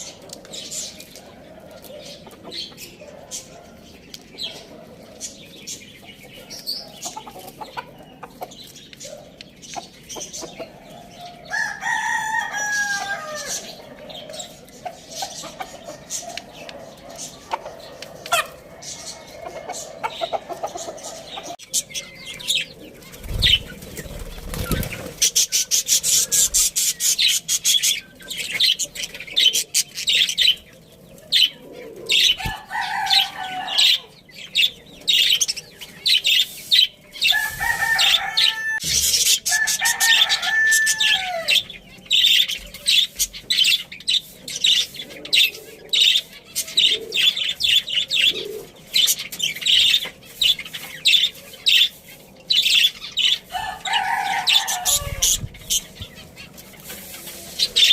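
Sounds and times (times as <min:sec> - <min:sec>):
rooster crowing: 0:11.2 - 0:13.7, 0:32.5 - 0:34.1, 0:37.3 - 0:38.9, 0:39.5 - 0:41.6, 0:53.5 - 0:55.4
birds fluttering: 0:22.8 - 0:27.8, 0:48.4 - 0:57.9.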